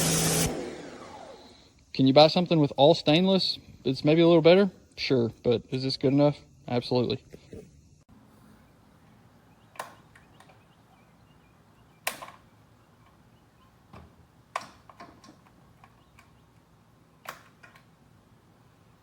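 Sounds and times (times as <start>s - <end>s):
sharp clicks and knocks: 9.7s - 10.7s, 12.0s - 13.2s, 13.9s - 18.0s.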